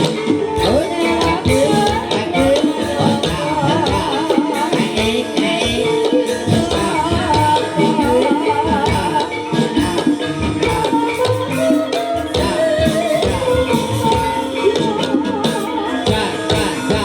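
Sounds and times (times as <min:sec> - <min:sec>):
drums: 0:00.0 - 0:17.0
shaken percussion: 0:00.0 - 0:17.0
wavering melody line: 0:00.0 - 0:17.0.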